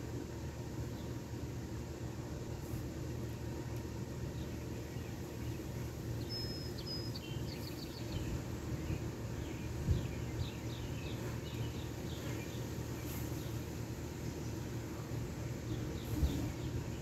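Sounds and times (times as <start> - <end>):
small birds chirping: 4.2 - 17.0.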